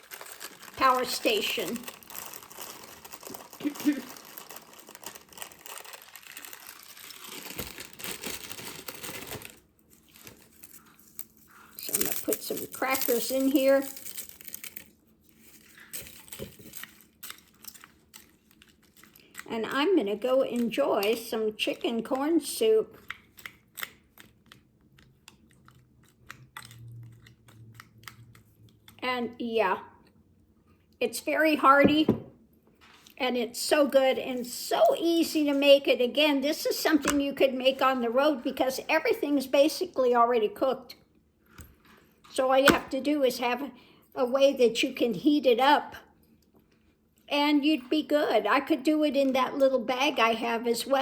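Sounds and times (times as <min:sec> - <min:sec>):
crackers being chewed: 0:00.0 - 0:13.1, 0:13.8 - 0:19.5, 0:23.0 - 0:29.0
plastic wrapper crinkling: 0:00.0 - 0:21.9.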